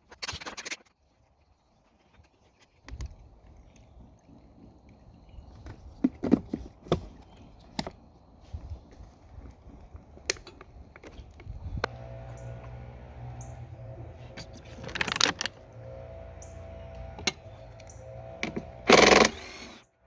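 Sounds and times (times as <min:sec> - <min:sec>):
tools and metal parts clicking: 0:14.4 - 0:19.8.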